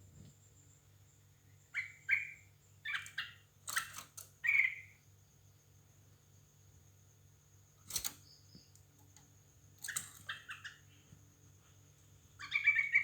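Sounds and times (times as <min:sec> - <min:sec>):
bird chirps: 0:01.6 - 0:05.0, 0:09.9 - 0:11.1, 0:12.3 - 0:13.0.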